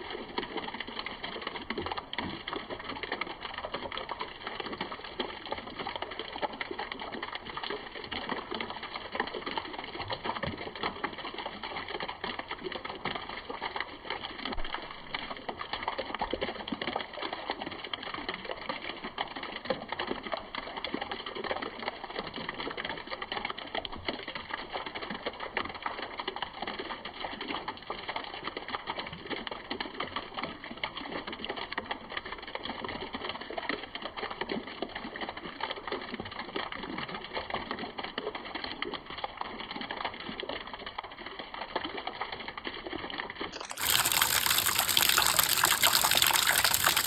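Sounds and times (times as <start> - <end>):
rain patter: 43.5 - 47.0.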